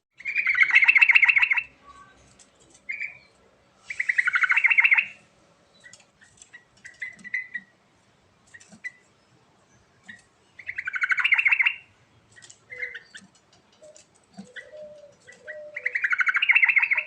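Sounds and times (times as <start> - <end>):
soft bird calls: 0.1 - 17.0
bird singing bubbling phrases: 9.8 - 11.9, 12.6 - 17.0.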